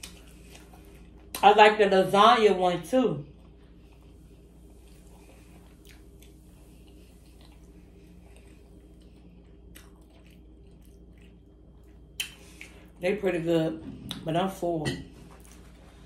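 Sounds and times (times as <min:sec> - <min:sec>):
person chewing food: 0:00.0 - 0:01.4, 0:03.3 - 0:13.0
low room hum: 0:00.0 - 0:16.0.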